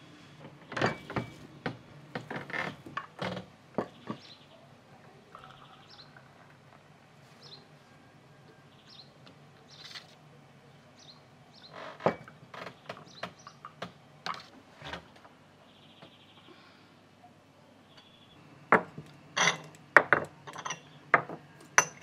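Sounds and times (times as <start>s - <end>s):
small birds chirping: 3.8s - 7.7s, 8.5s - 11.9s, 12.5s - 14.1s, 15.1s - 18.4s.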